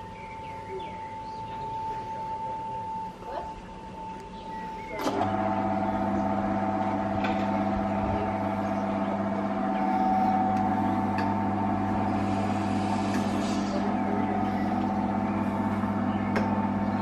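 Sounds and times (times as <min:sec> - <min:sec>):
small engine humming: 0:04.0 - 0:17.0.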